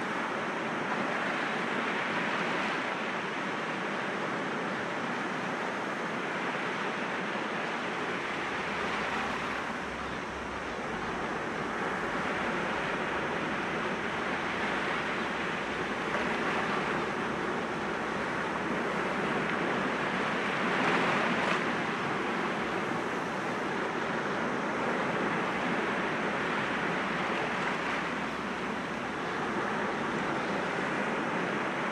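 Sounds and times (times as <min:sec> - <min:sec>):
sea waves breaking on rocks: 0:08.0 - 0:30.9.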